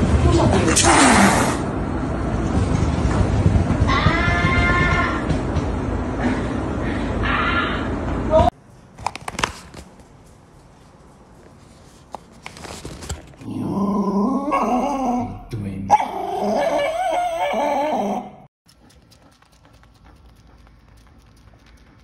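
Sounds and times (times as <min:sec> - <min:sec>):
faint clicks and rustles: 0:08.7 - 0:13.4
dog whining: 0:14.1 - 0:18.5.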